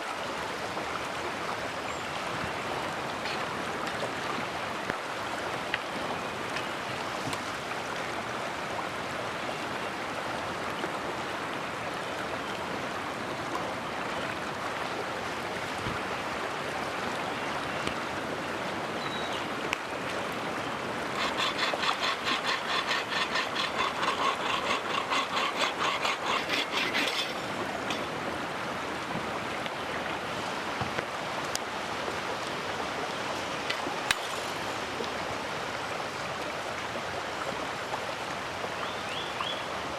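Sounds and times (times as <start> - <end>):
mountain stream flowing: 0.0 - 39.9
hand saw cutting wood: 21.1 - 28.1, 34.1 - 34.5.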